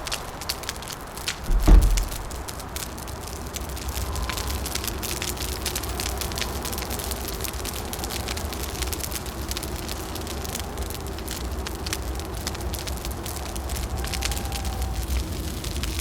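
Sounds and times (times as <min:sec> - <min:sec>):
wood fire crackling: 0:00.0 - 0:16.0
low rumble: 0:01.5 - 0:02.5.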